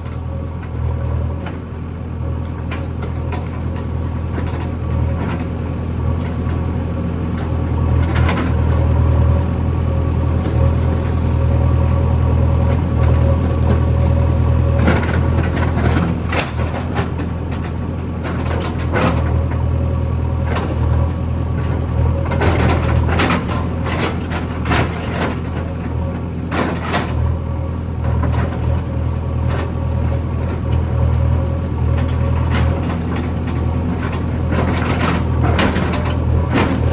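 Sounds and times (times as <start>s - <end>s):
diesel engine humming: 0.0s - 36.9s.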